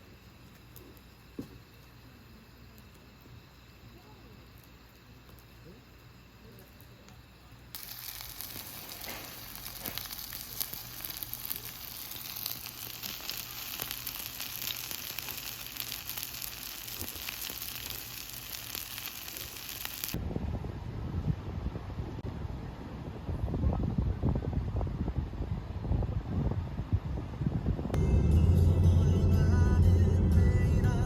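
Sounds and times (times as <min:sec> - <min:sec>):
crackling hiss with fine clicks: 0:00.0 - 0:20.2.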